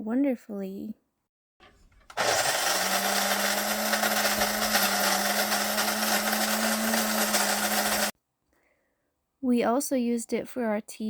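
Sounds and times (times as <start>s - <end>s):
coffee grinder grinding beans: 2.1s - 8.1s.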